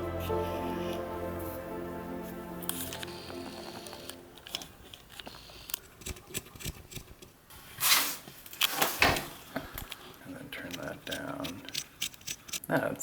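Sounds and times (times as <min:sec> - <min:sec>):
rustles or scrapes: 0:07.5 - 0:10.2.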